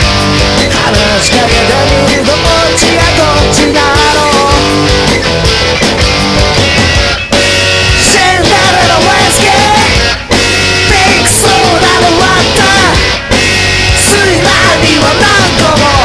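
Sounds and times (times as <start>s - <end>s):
loud rock song with guitars: 0.0s - 16.0s.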